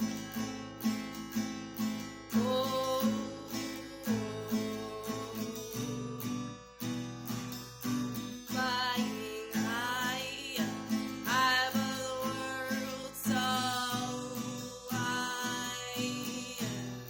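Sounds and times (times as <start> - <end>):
acoustic guitar strumming: 0.0 - 17.0
person singing long notes: 2.4 - 6.3.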